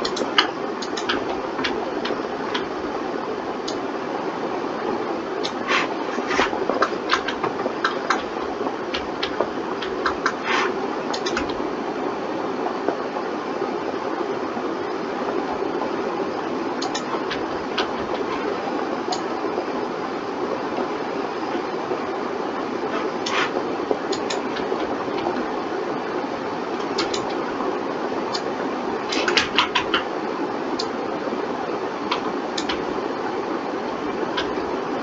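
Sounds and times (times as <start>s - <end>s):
mouse and keyboard clicking: 0.0s - 2.7s, 5.4s - 11.6s, 16.8s - 18.5s, 24.1s - 25.4s, 26.8s - 27.4s, 29.1s - 30.1s, 32.1s - 32.9s
fan hiss: 0.0s - 35.0s.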